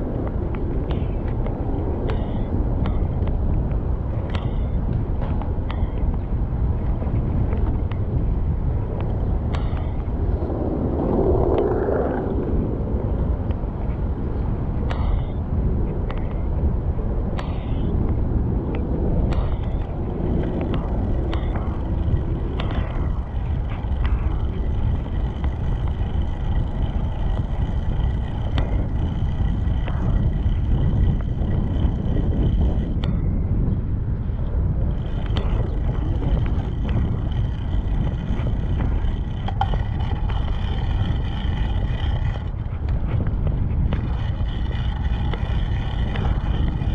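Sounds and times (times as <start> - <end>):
bicycle road noise: 0.0 - 46.9
wind rumble on microphone: 0.0 - 46.9.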